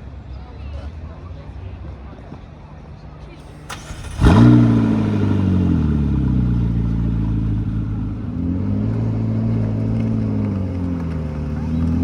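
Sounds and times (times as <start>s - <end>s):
vehicle engine starting and idling: 3.3s - 12.0s.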